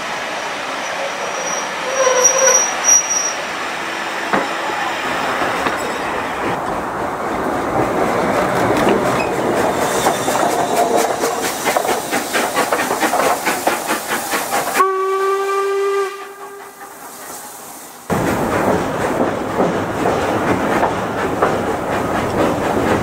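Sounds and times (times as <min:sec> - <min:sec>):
steam locomotive whistle: 0:00.9 - 0:03.4, 0:14.7 - 0:16.9
train wheels clattering: 0:04.2 - 0:14.9, 0:18.1 - 0:23.0.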